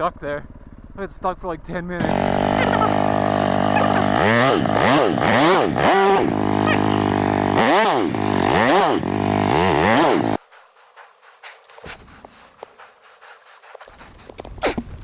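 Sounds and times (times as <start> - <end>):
motorcycle engine revving: 1.9 - 10.4.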